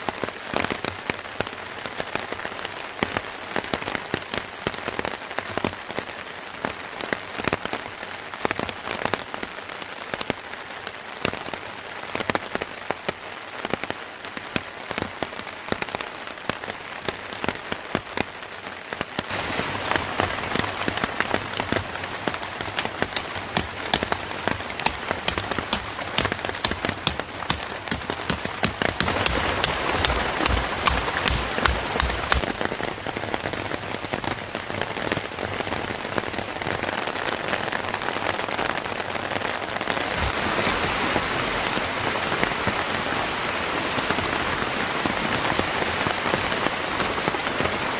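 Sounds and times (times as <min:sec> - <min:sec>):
rain pattering: 0:00.0 - 0:47.9
sharp crisp ticks: 0:22.3 - 0:32.5.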